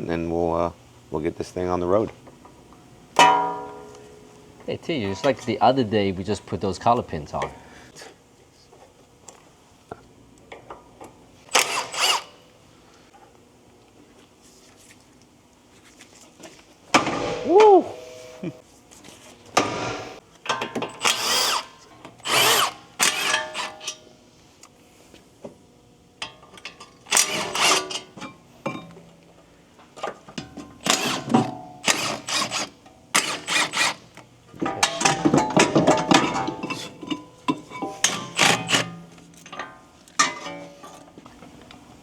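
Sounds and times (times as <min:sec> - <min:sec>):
cordless power tool bursts: 0:11.5 - 0:12.4, 0:21.0 - 0:23.8, 0:30.8 - 0:34.0.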